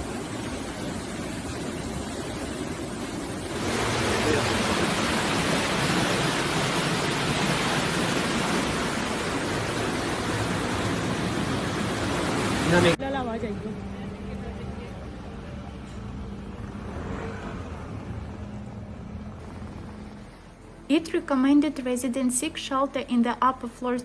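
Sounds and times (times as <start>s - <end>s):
floodwater rushing: 0.0s - 15.3s.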